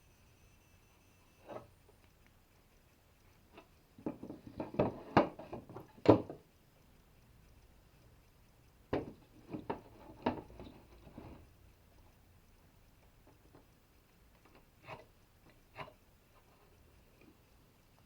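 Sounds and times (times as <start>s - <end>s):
wood knocking and clattering: 8.9s - 10.7s.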